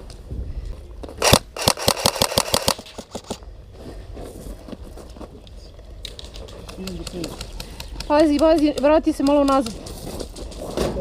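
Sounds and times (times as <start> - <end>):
airsoft gun firing: 1.2 - 3.4.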